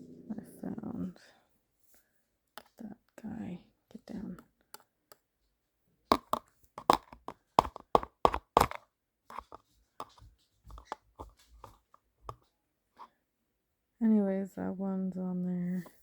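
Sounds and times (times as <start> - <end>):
sharp taps and knocks: 6.1 - 12.4.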